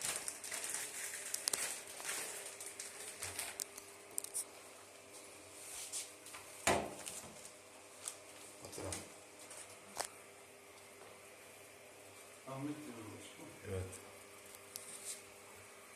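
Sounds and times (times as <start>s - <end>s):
rustling and clicking handling: 0.0s - 4.5s.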